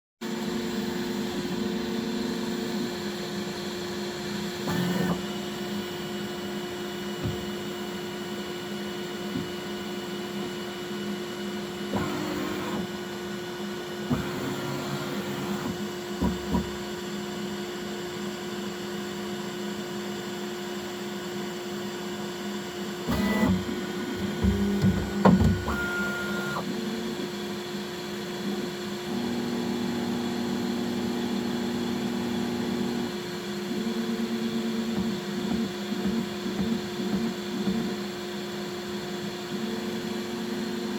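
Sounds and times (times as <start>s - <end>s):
stepper motors whining: 23.1s - 26.6s.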